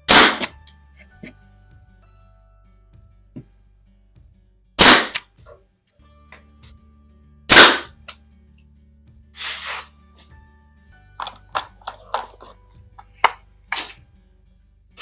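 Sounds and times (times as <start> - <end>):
nail gun firing: 0.0 - 0.6, 4.8 - 5.2, 7.5 - 8.0
brief air hiss: 9.4 - 10.0.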